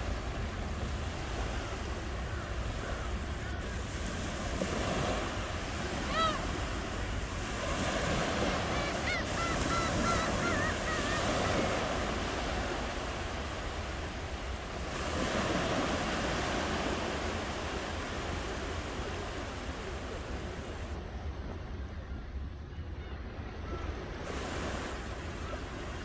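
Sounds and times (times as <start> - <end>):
ocean waves washing in: 0.0 - 21.4, 24.0 - 26.0
bird wavering calls: 7.6 - 12.8.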